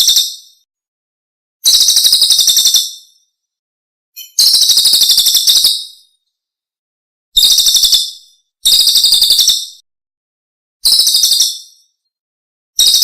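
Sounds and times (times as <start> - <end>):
short bird chirp: 4.2 - 6.0.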